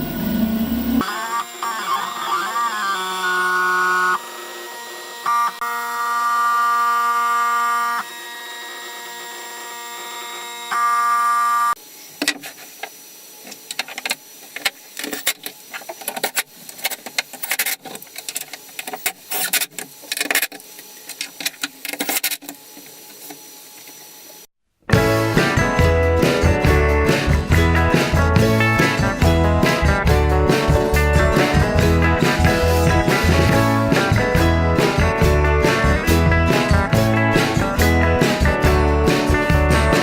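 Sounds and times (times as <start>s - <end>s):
stepper motors whining: 0.0s - 11.8s, 28.6s - 37.7s
machine buzzes and clicks: 0.0s - 24.5s.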